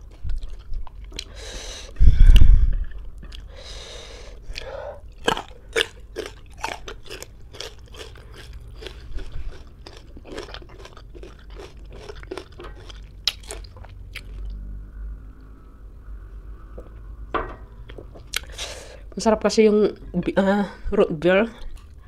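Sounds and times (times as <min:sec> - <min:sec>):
crunchy chewing of raw fruit: 0:00.0 - 0:14.6, 0:17.8 - 0:18.8.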